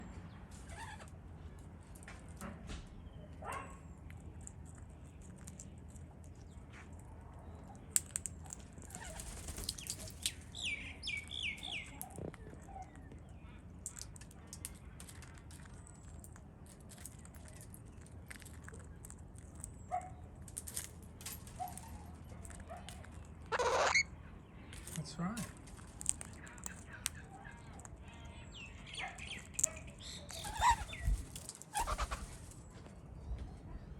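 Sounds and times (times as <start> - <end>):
parrots clicking and tapping: 3.5 - 7.1, 7.8 - 10.5, 11.1 - 24.0, 24.6 - 32.2
loud harsh parrot call: 23.5 - 24.1
soft parrot calls: 23.5 - 24.1, 30.3 - 31.1.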